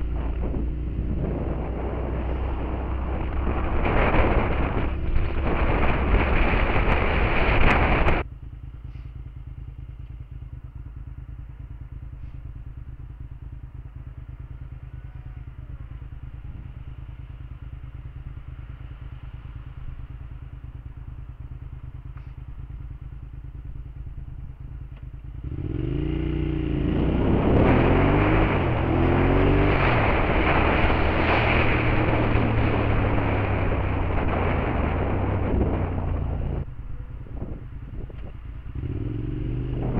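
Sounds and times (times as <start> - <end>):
wind noise: 0.0 - 8.3, 25.4 - 39.9
motorcycle engine idling: 0.0 - 26.7, 34.1 - 39.9
motorcycle engine revving: 0.0 - 39.9.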